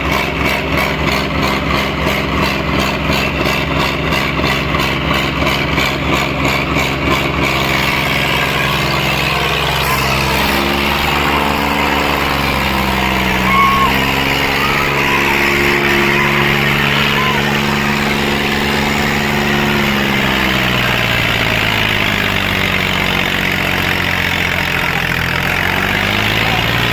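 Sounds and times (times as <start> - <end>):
tractor diesel engine running: 0.0 - 26.9
fast pulsing: 7.5 - 26.9
short high tone: 9.4 - 20.2.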